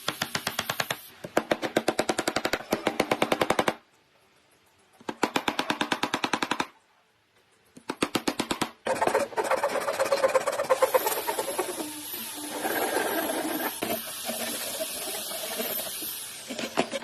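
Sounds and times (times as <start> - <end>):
woodworking tool clicking rapidly: 7.9 - 11.9.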